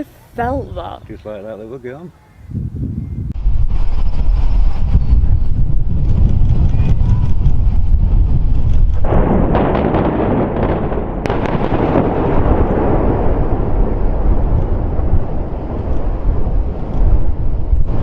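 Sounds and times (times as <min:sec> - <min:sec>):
wind noise on microphone: 0:00.0 - 0:18.0
long rumble: 0:03.3 - 0:18.0
explosive blast boom: 0:03.4 - 0:18.0
sharp cracks: 0:06.0 - 0:18.0.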